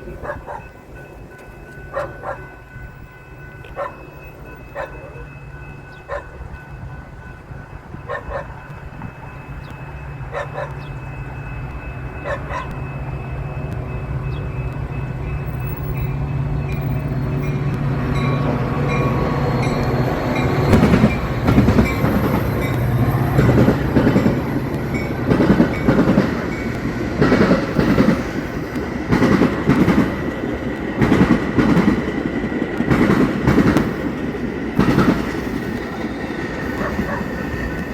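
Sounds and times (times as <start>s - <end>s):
diesel locomotive rumble: 0.0s - 37.9s
train wheels clattering over crossing: 3.7s - 37.9s.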